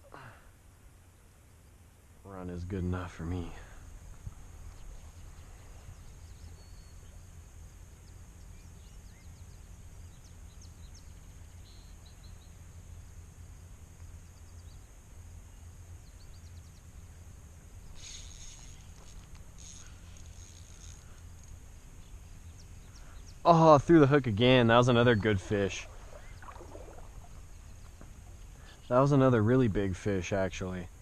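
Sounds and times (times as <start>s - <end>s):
faint bird chirps: 3.2s - 13.1s, 17.8s - 29.6s
river water flowing: 17.2s - 29.4s.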